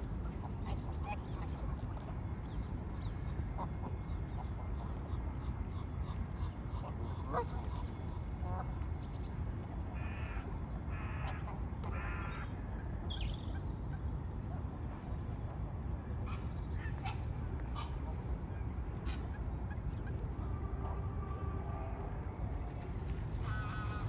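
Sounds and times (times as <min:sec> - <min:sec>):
low rumble: 0:18.8 - 0:24.0.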